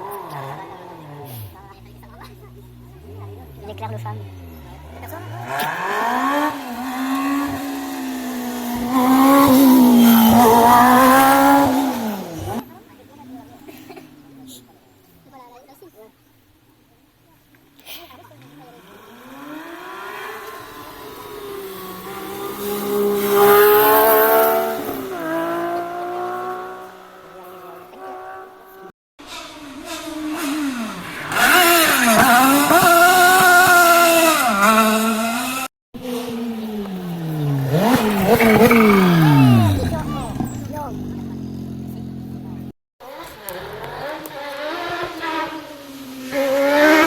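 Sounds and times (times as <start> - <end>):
rally car engine at high revs: 0.0 - 15.9, 17.4 - 47.0.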